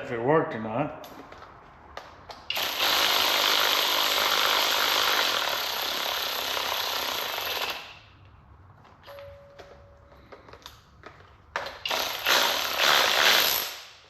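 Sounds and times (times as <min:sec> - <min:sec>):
power tool whirring: 0:02.5 - 0:08.0, 0:11.8 - 0:13.9.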